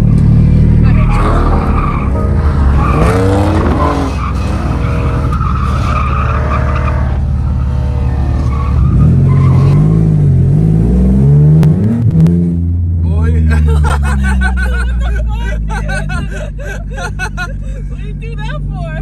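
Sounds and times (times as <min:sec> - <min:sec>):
tyres squealing and skidding: 0:00.8 - 0:10.1
car engine revving: 0:02.7 - 0:12.4.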